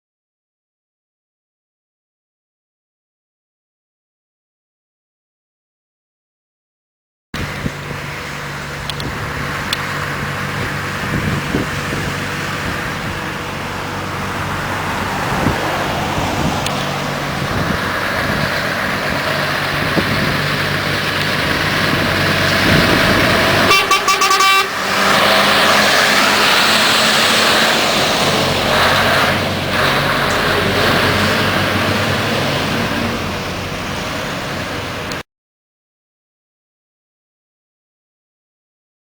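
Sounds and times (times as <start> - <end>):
road noise: 7.4 - 35.2
truck engine running: 7.4 - 35.2
truck horn toots: 22.6 - 27.4.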